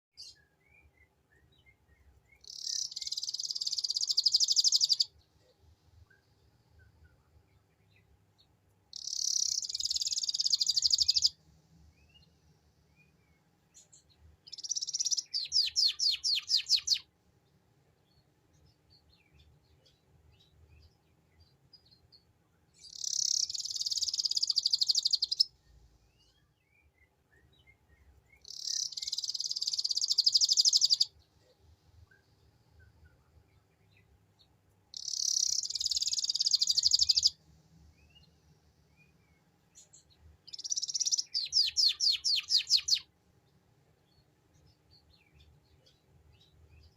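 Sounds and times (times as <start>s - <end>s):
canary singing trills: 0.2s - 5.2s, 8.9s - 11.4s, 13.8s - 17.1s, 22.8s - 34.2s, 34.9s - 37.4s, 38.0s - 43.1s.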